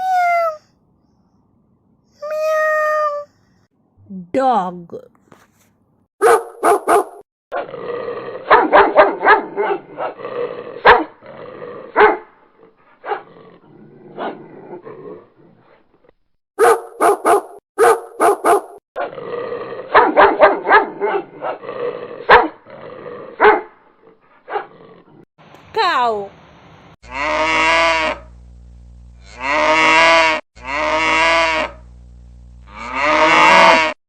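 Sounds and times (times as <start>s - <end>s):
dog barking: 6.2s - 7.7s, 8.4s - 10.2s, 10.8s - 11.2s, 12.0s - 12.3s, 13.0s - 13.3s, 16.6s - 18.8s, 19.9s - 21.6s, 22.2s - 22.6s, 23.4s - 23.8s, 24.5s - 24.7s.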